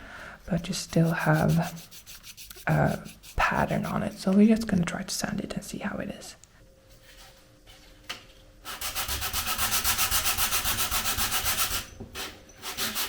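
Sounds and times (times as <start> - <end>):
sanding plastic by hand: 0.5 - 4.2, 8.7 - 11.8, 12.6 - 13.0.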